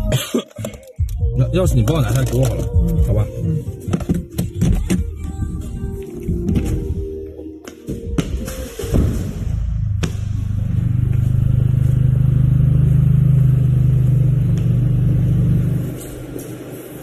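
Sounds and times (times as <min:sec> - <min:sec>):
car engine exhaust drone: 0:09.2 - 0:17.0.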